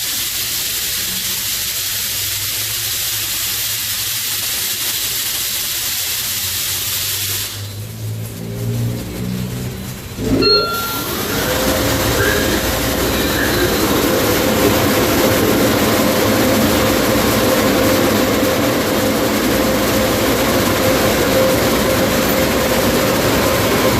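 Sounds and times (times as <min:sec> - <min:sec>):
car wash blower dryers: 0:00.0 - 0:23.9.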